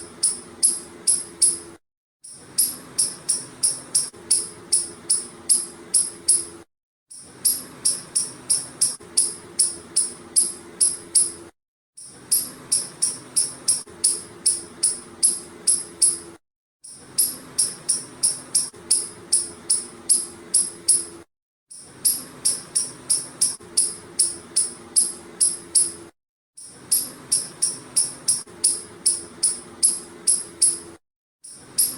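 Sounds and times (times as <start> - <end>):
squirrel chirping: 0.2 - 1.6, 2.6 - 6.5, 7.4 - 11.3, 12.3 - 16.2, 17.2 - 21.1, 22.0 - 26.0, 26.9 - 30.8.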